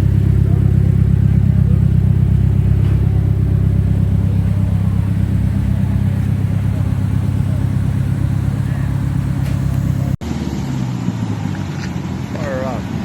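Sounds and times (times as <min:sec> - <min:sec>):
car engine idling: 0:00.0 - 0:10.2.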